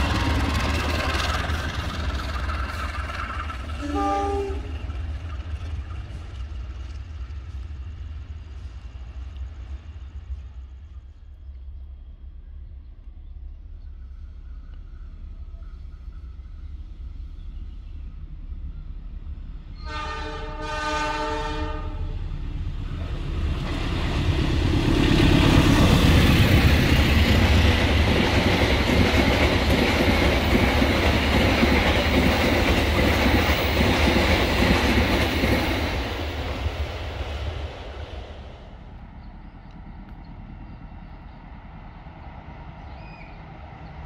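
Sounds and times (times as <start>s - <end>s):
train wheels rumbling on rails: 0.0s - 44.0s
train horn: 3.8s - 4.8s, 19.7s - 22.2s.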